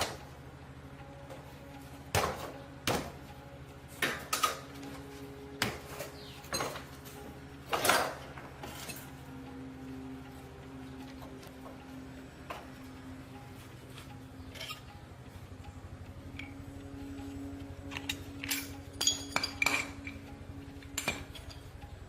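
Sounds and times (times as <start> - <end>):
steady low hum: 0.0 - 22.0
knocks and clanks of tools: 2.1 - 3.4, 4.0 - 9.1, 17.8 - 21.7.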